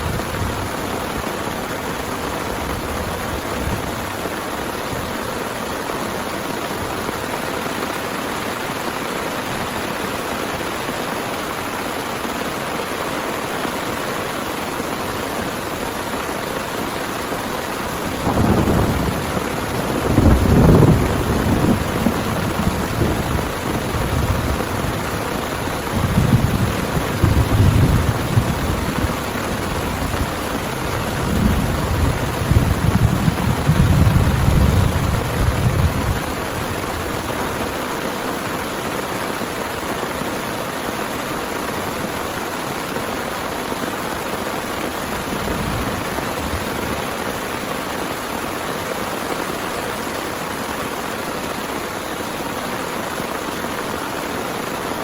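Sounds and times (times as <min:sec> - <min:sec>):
heavy rain falling: 0:00.0 - 0:55.0
rolling thunder: 0:17.9 - 0:37.0.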